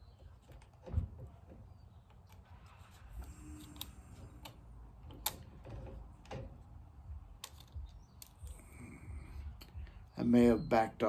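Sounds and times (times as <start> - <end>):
low rumble: 2.9 - 10.2
tool parts clicking and tapping: 7.4 - 8.7.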